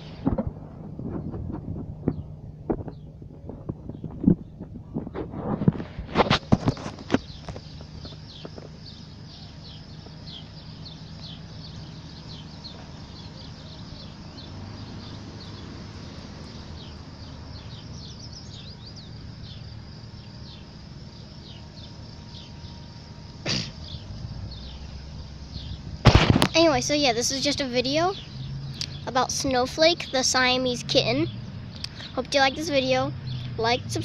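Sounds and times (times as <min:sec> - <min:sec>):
low background hum: 0:00.0 - 0:34.0
small birds chirping: 0:00.0 - 0:34.0
loud bump: 0:25.7 - 0:26.7.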